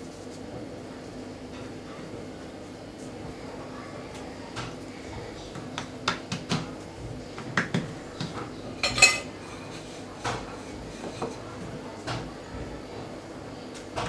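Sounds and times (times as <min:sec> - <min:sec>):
utensils and dishes clinking: 0:07.5 - 0:12.2.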